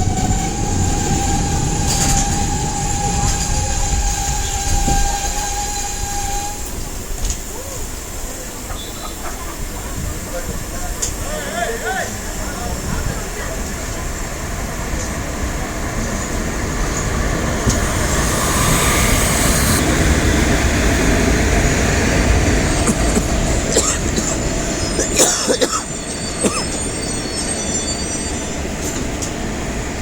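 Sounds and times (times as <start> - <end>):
high-pitched wheel squeals: 0.0 - 7.0, 16.8 - 20.6, 25.9 - 29.0
sharp train clanks: 0.0 - 7.6, 11.9 - 30.0
train wheels rumbling: 0.0 - 7.6, 9.6 - 30.0.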